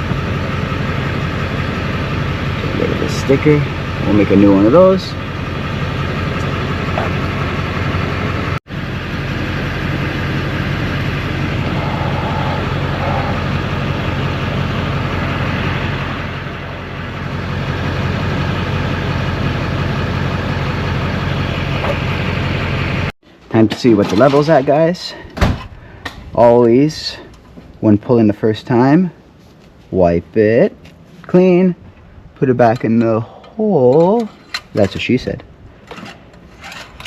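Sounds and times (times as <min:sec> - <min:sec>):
diesel engine idling: 0:00.0 - 0:23.1.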